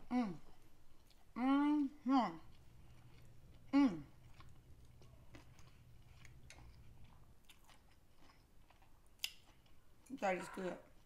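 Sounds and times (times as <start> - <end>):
soft chewing mouth clicks: 2.4 - 9.8.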